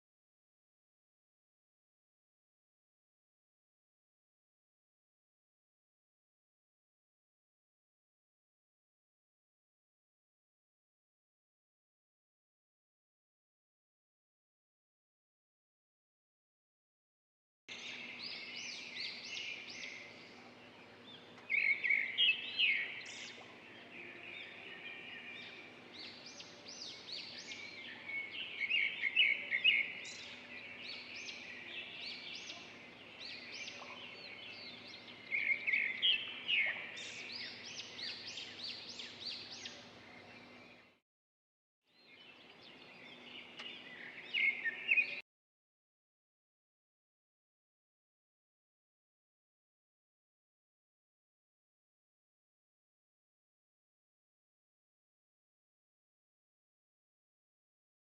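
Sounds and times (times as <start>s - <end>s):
birds chirping and trilling: 17.7s - 41.0s, 42.0s - 45.2s.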